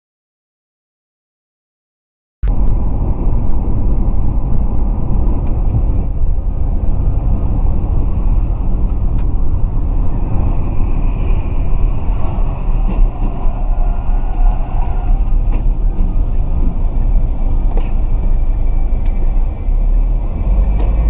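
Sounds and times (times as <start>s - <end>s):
vehicle engine and road noise: 2.4s - 21.0s.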